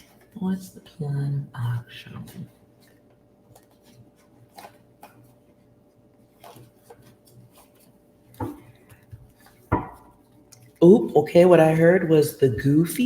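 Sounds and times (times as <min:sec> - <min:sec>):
cards tapping and rustling: 0:02.8 - 0:05.5, 0:06.3 - 0:10.2.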